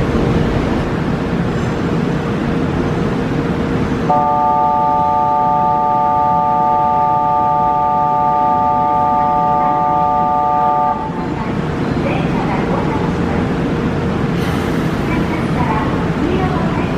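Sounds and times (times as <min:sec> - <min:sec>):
station rumble: 0:00.0 - 0:16.9
electronic signal tone chord: 0:04.1 - 0:11.2.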